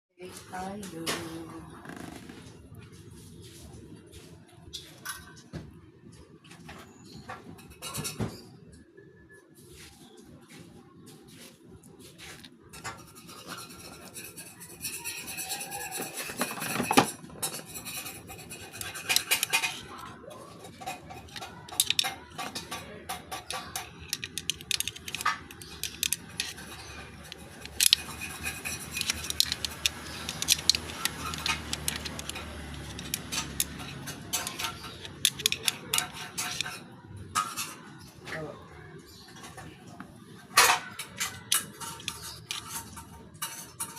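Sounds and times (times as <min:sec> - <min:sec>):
metal parts clinking and scraping: 0:12.4 - 0:38.0, 0:40.6 - 0:43.9.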